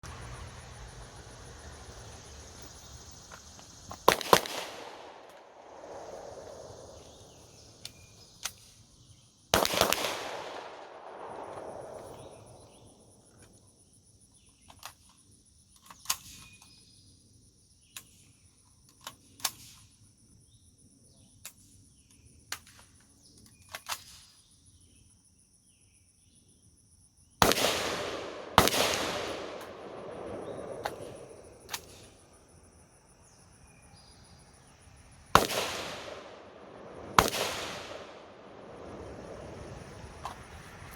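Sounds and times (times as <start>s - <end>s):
high insect drone: 0.0s - 9.6s, 10.4s - 27.4s, 28.1s - 40.9s
gunshots with rolling echo: 4.0s - 7.8s, 9.6s - 13.0s, 27.4s - 32.3s, 35.3s - 40.2s.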